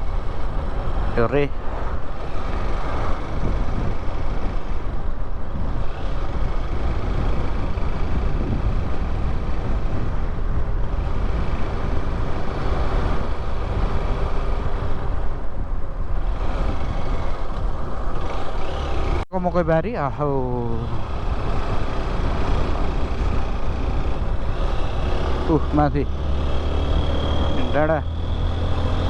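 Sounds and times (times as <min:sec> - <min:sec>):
wind rush on microphone: 0:00.0 - 0:29.0
motorcycle engine running: 0:16.1 - 0:19.2, 0:20.6 - 0:29.0.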